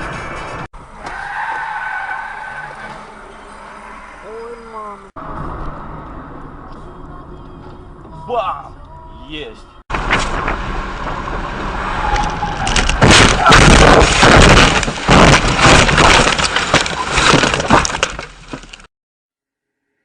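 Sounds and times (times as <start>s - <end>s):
car crash impacts and crunching: 9.9s - 18.9s.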